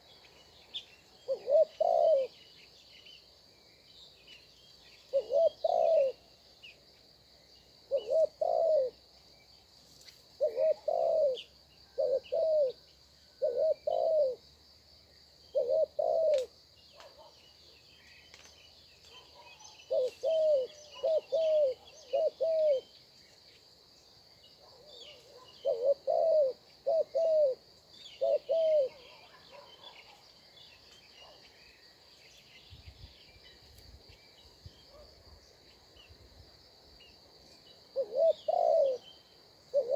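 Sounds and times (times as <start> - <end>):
faint small-bird chirps: 0.0 - 14.4, 15.0 - 36.2
dove cooing: 1.2 - 2.4, 5.1 - 6.3, 7.9 - 9.0, 10.4 - 14.4, 15.5 - 17.3, 19.1 - 22.9, 24.7 - 30.2, 38.0 - 39.1.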